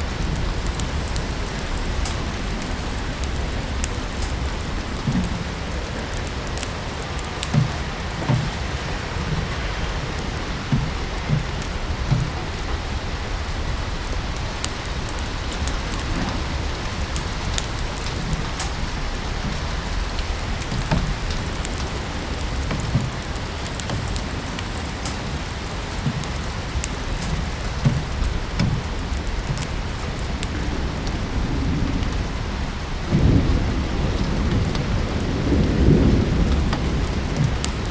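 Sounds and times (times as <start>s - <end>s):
steady rain: 0.0s - 37.9s
wood fire crackling: 0.0s - 37.9s
soft low thuds: 7.5s - 13.8s.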